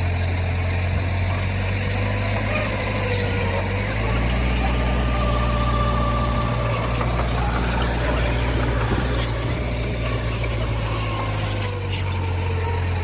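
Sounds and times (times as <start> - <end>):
diesel machinery engine running: 0.0 - 13.0.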